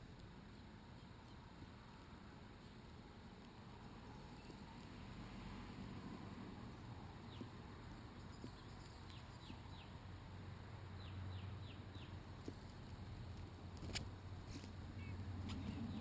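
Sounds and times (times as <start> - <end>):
bird chirping: 7.3 - 7.5, 8.2 - 10.0, 11.0 - 12.2, 15.0 - 16.0.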